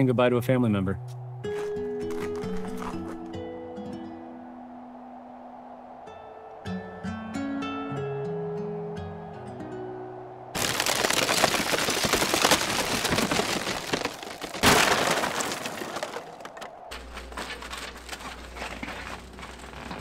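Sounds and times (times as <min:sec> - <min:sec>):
glass shattering: 0:10.6 - 0:16.5
big crash: 0:10.6 - 0:20.0
wood cracking and splintering: 0:10.6 - 0:20.0.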